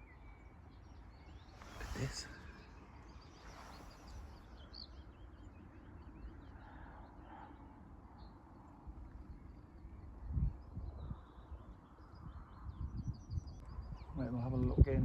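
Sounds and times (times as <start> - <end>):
songbird chirping: 0.0 - 7.2
wind rumble: 1.5 - 5.5.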